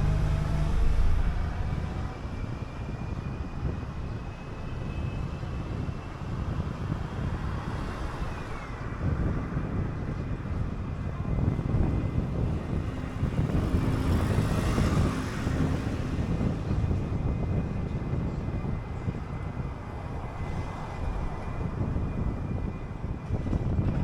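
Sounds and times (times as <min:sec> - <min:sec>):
faint high whine sliding down: 0:00.0 - 0:04.7
bus engine and road rumble: 0:00.0 - 0:24.0.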